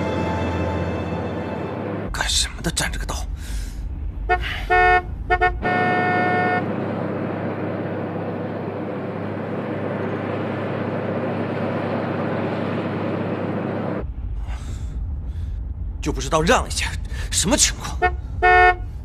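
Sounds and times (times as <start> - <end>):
traffic rushing: 0.0 - 19.0
car horn honking: 4.3 - 6.7, 18.0 - 18.9.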